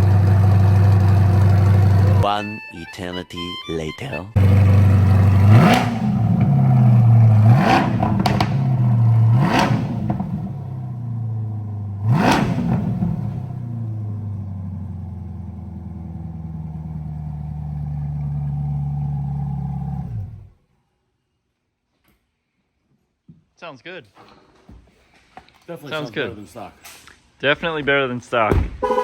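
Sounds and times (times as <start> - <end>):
car engine idling: 0.0 - 2.2, 4.4 - 20.6
car engine revving: 0.0 - 2.2, 4.4 - 20.6.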